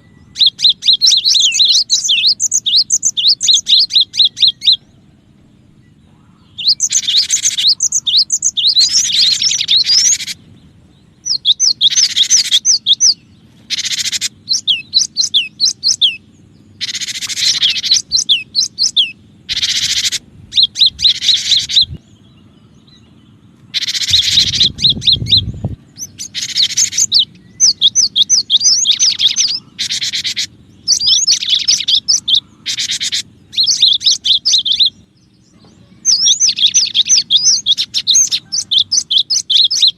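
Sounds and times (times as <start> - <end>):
high bird chirping: 0.0 - 39.9
low rumble: 17.5 - 26.4.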